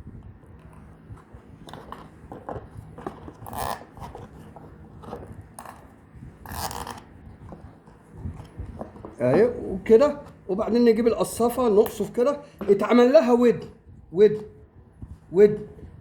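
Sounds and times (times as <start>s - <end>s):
cable tie zipping: 3.4s - 4.4s, 6.4s - 7.1s.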